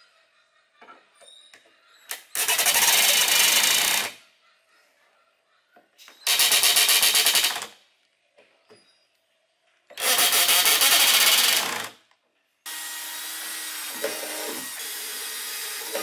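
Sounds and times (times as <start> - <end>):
cordless drill driving screws into wood: 2.1 - 4.2, 6.2 - 7.8, 10.0 - 12.0, 12.7 - 16.0.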